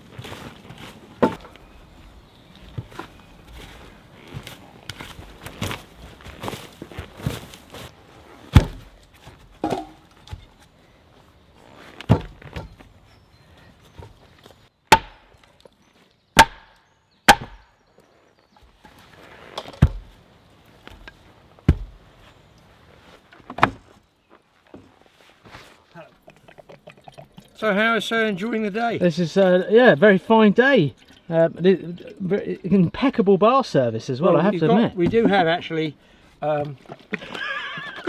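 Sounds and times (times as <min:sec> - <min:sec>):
tool striking wood: 0:14.9 - 0:15.3, 0:16.4 - 0:17.7.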